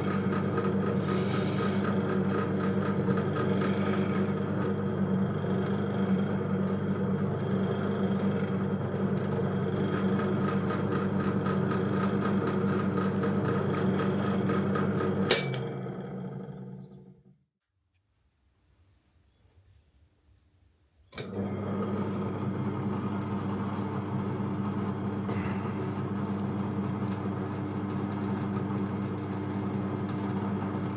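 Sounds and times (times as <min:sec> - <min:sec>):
drill press motor humming: 0:00.0 - 0:17.4, 0:21.2 - 0:30.9.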